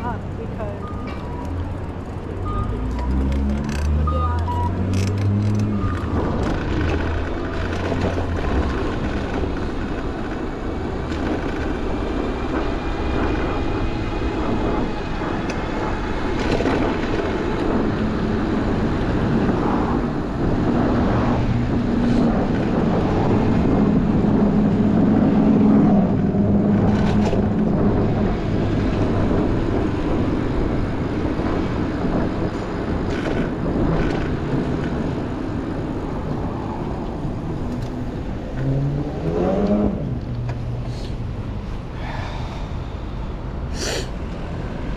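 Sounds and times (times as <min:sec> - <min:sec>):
road rumble: 0:00.0 - 0:44.9
vehicle engine hum: 0:00.0 - 0:44.9.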